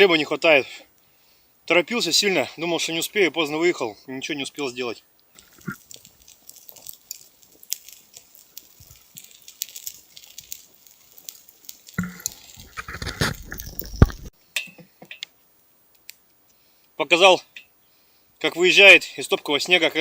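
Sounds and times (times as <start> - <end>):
campfire crackling: 0.0 - 20.0
rustling and crunching: 5.3 - 16.7.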